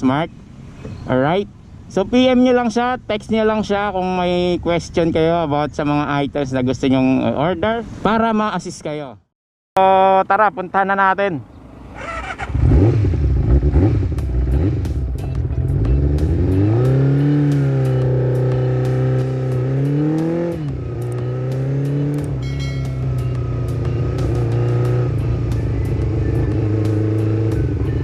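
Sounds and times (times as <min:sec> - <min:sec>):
motorcycle engine revving: 0:11.4 - 0:28.0.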